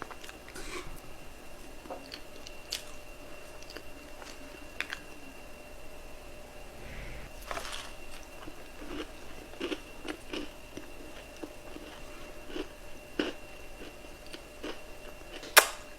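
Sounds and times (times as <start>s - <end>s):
person chewing cookie: 6.7s - 15.8s.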